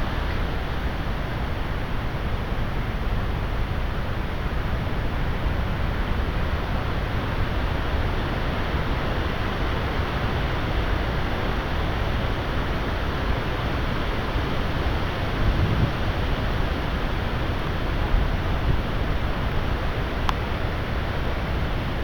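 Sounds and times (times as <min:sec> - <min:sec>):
strong wind rumbling: 0:14.0 - 0:22.0.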